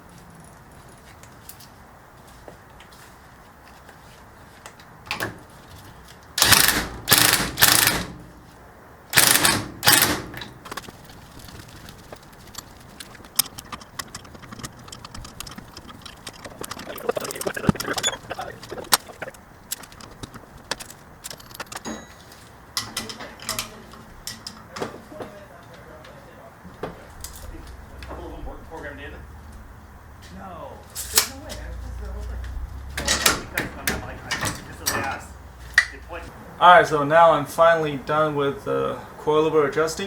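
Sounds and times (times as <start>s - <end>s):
loud rasping mechanical bursts: 6.4s - 8.2s, 9.1s - 21.8s.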